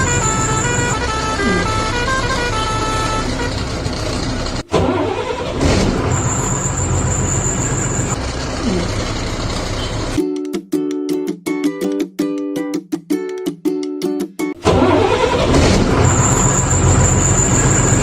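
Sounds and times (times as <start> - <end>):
vehicle engine running: 0.0 - 10.2, 14.7 - 18.0.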